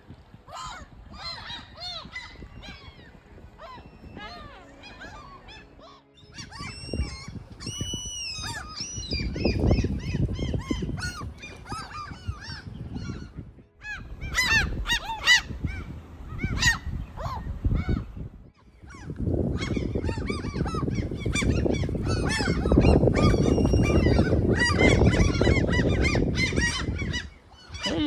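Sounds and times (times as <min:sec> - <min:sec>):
wind rumble on microphone: 0:00.0 - 0:28.0
gulls crying: 0:03.6 - 0:13.3, 0:18.8 - 0:28.0.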